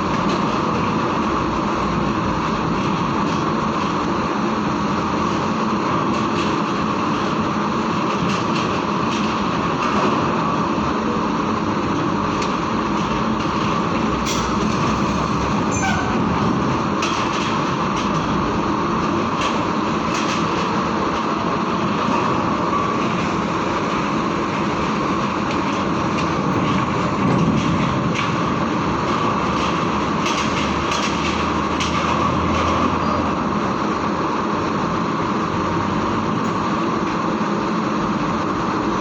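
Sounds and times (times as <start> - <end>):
diesel truck engines running: 0.0 - 39.0
metal clanks and rattles: 23.0 - 33.0.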